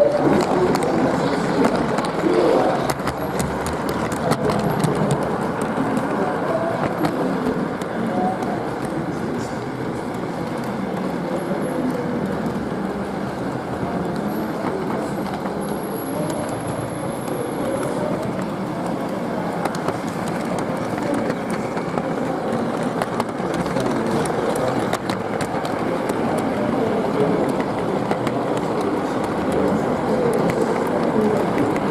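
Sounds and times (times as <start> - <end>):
clicks from rails: 0.0 - 31.9.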